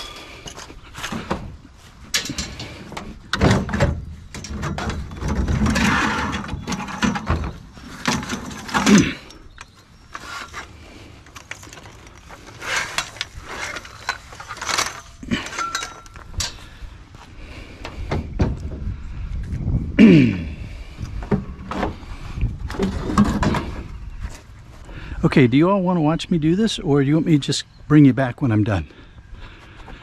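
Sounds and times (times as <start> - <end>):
scrap metal clanking and scraping: 0.0 - 9.4, 10.1 - 16.7, 21.2 - 24.0.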